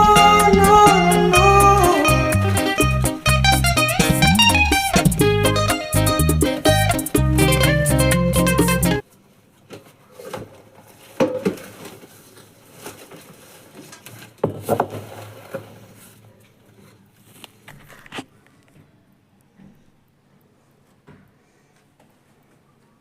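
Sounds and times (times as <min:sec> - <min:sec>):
guitar music: 0:00.0 - 0:09.0.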